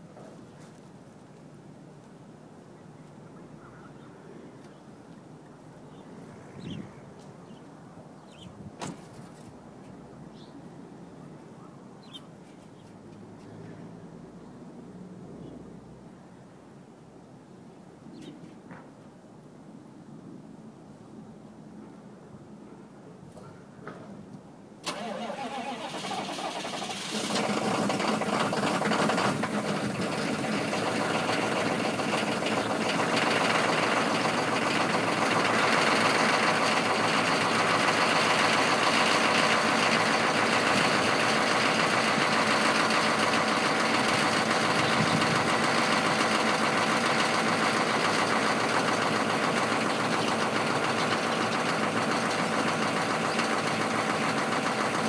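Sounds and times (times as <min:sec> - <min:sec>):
diesel engine cranking: 0:24.8 - 0:55.0
diesel engine idling: 0:24.8 - 0:55.0.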